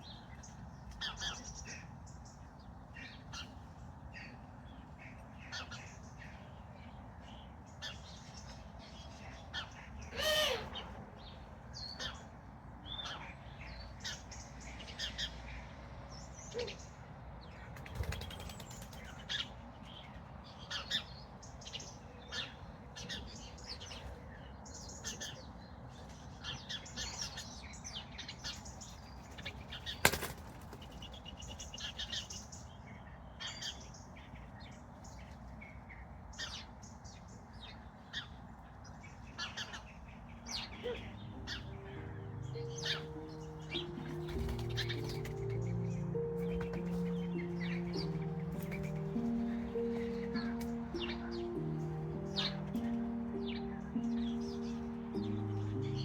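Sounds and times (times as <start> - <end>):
birds chirping: 16.1 - 56.0
harsh bird call with falling pitch: 40.5 - 56.0.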